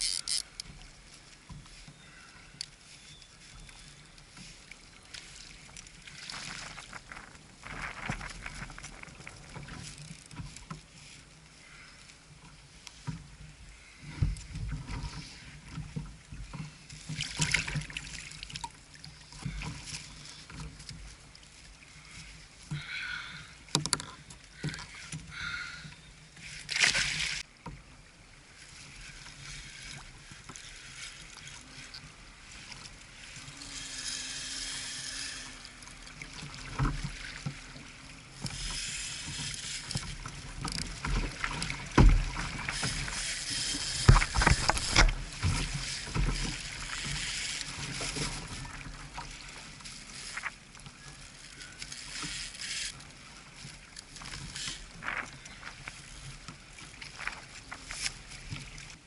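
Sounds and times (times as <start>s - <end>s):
water lapping against kayak: 0.0s - 59.0s
knocks and thumps on hull: 40.0s - 43.2s, 43.9s - 47.2s.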